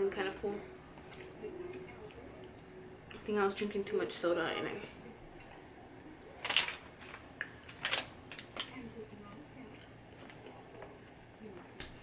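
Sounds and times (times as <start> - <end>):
soft chewing and mouth clicks: 5.3 - 12.0.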